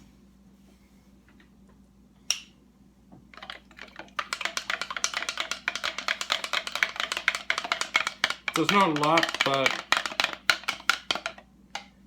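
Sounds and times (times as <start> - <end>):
spoon clicking against container: 4.2 - 11.9.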